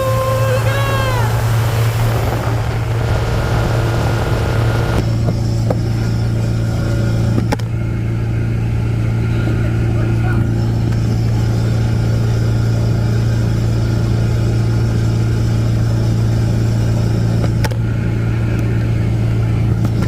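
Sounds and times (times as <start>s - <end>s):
motorboat engine humming: 0.0s - 20.0s.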